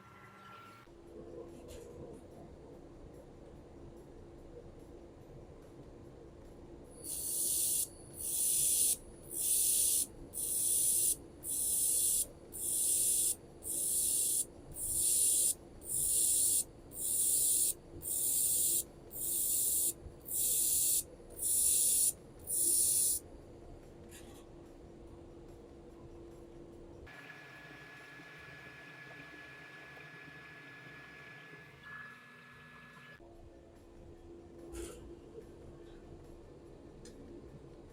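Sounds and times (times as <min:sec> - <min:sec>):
laser welder hissing bursts: 0:07.0 - 0:23.2.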